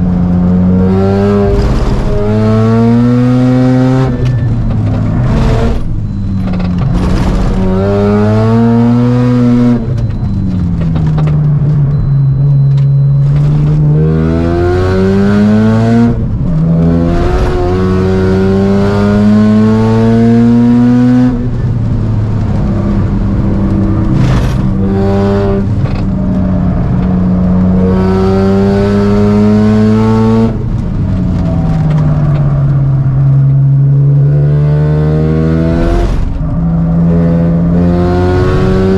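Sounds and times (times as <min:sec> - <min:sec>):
rotary engine accelerating hard: 0:00.0 - 0:38.9.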